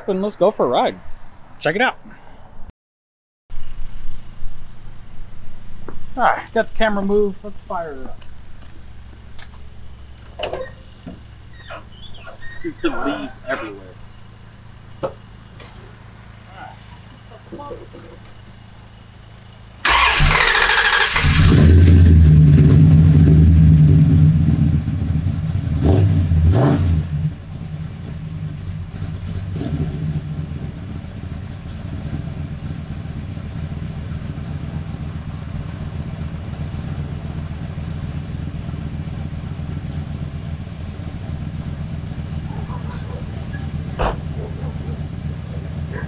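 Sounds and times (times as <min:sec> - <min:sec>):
car engine idling: 0:04.2 - 0:46.0
car engine revving: 0:19.7 - 0:46.0
starter cranking engine: 0:19.8 - 0:23.0.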